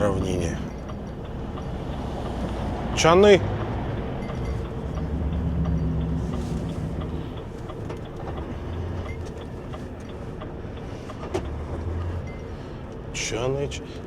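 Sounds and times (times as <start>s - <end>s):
cab rattles and clicks: 0.0s - 10.1s
diesel engine rumble: 0.0s - 14.0s.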